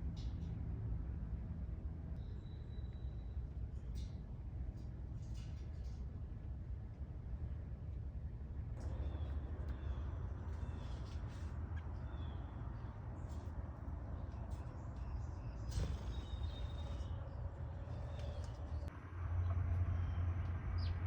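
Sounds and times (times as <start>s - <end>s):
birds calling: 8.8s - 18.9s.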